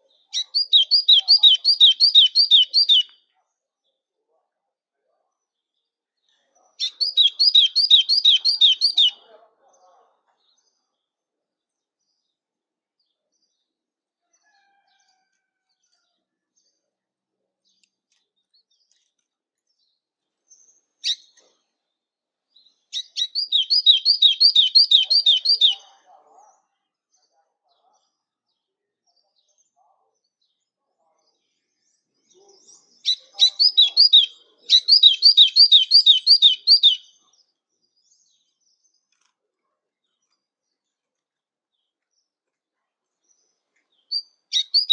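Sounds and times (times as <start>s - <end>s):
faint songbird chirps: 0.0s - 4.1s, 5.2s - 11.1s, 11.7s - 26.0s, 31.3s - 42.5s, 43.1s - 44.9s.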